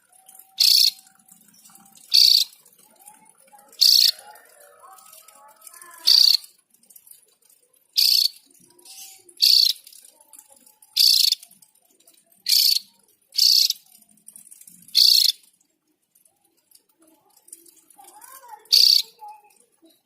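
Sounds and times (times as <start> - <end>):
bird giving harsh high calls: 0.6 - 1.0, 2.0 - 2.6, 6.0 - 6.5, 8.0 - 9.8, 11.0 - 11.4, 12.5 - 12.8, 13.4 - 13.8, 15.0 - 15.4, 18.7 - 19.2.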